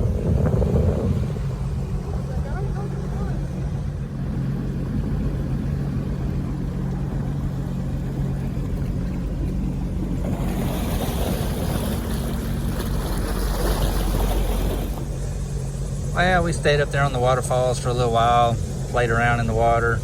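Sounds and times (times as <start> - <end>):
wind noise: 0.0 - 15.4
boat motor running: 0.0 - 20.0
rush of water: 0.0 - 20.0.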